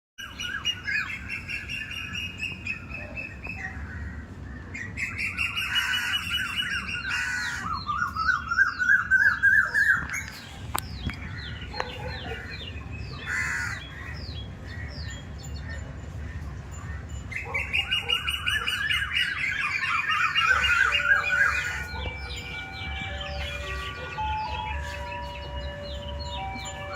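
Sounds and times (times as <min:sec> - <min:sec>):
birds chirping and trilling: 0:00.2 - 0:26.9.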